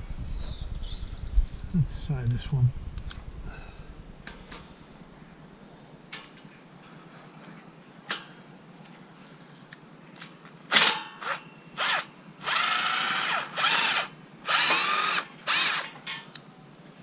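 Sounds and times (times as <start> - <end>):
power drill driver bursts: 10.7 - 15.9.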